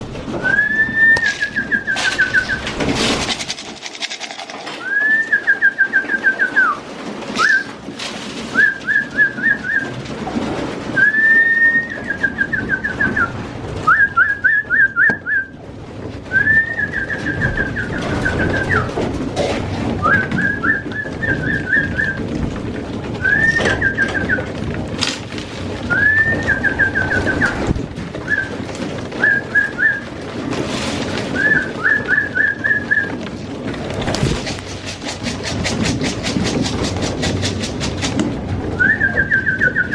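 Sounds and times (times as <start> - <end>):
wings flapping: 0.0 - 39.9
pigeons cooing: 0.1 - 39.9
whistled phrase: 0.4 - 2.6, 4.8 - 6.8, 7.4 - 7.7, 11.0 - 13.3, 23.2 - 24.4, 38.8 - 39.9.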